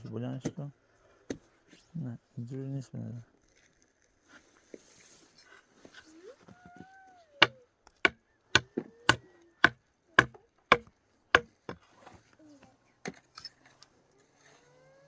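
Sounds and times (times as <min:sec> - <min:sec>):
hand tool chopping blows: 0:08.0 - 0:11.8.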